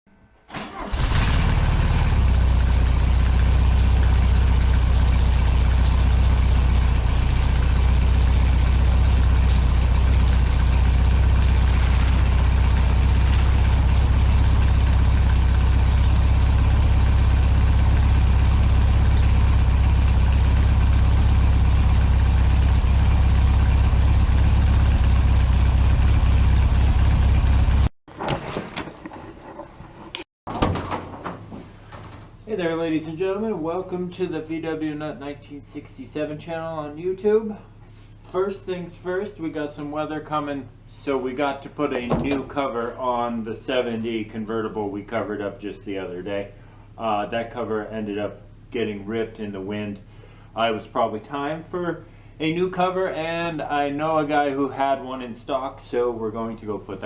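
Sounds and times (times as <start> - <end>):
car engine idling: 0.6 - 27.9.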